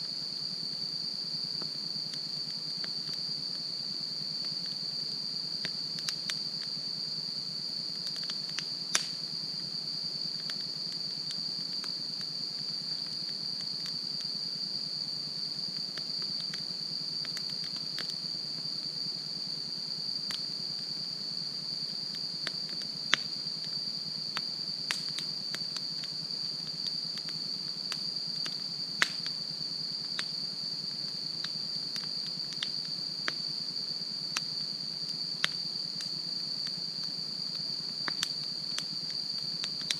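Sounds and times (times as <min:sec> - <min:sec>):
insects trilling: 0:00.0 - 0:39.9
campfire crackling and popping: 0:05.6 - 0:06.7, 0:08.0 - 0:09.2, 0:10.3 - 0:14.3, 0:15.5 - 0:18.3, 0:21.9 - 0:29.4, 0:30.0 - 0:33.4, 0:35.4 - 0:39.9.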